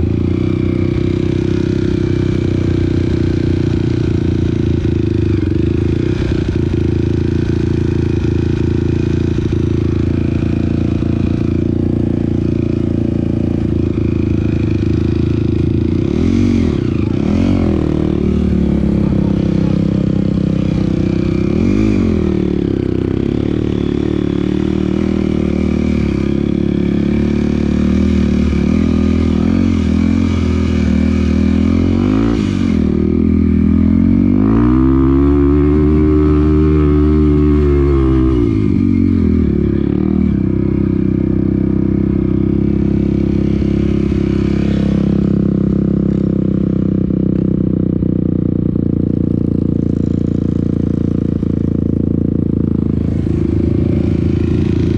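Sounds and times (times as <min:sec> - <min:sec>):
off-road motorcycle engine revving: 0:00.0 - 0:54.9.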